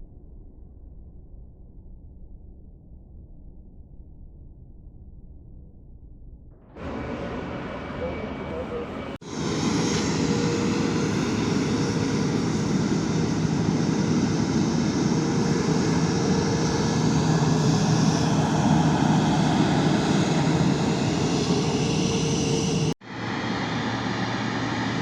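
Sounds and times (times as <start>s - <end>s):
jet engines running: 6.7s - 25.0s.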